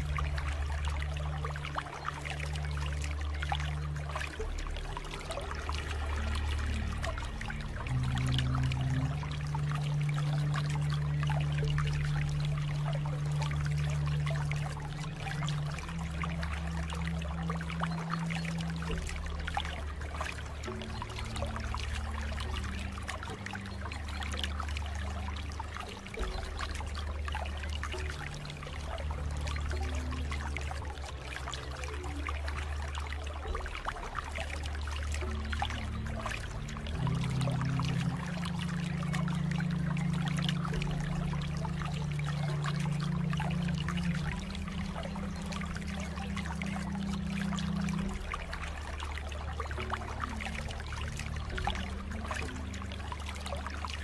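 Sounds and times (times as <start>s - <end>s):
soft music pad notes: 0.0s - 54.0s
water trickling and babbling: 0.0s - 54.0s.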